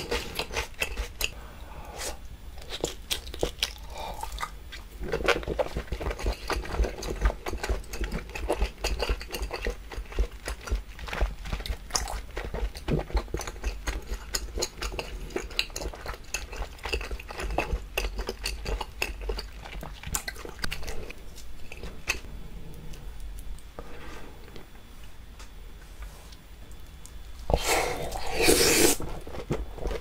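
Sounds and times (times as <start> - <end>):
wet chewing with mouth clicks: 0.0 - 1.4, 2.6 - 22.3.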